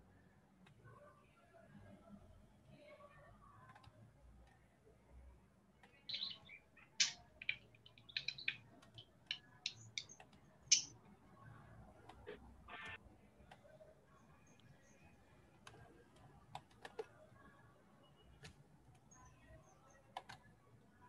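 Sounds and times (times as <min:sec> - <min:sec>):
bird chirping: 0:05.9 - 0:11.0.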